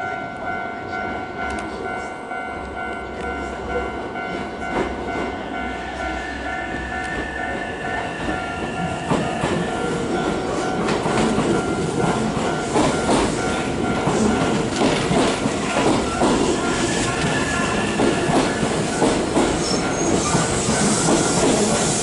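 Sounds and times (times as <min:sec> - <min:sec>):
electric train whine: 0:00.0 - 0:22.0
train rumble: 0:00.0 - 0:22.0
train wheels clacking over rail joints: 0:06.7 - 0:22.0.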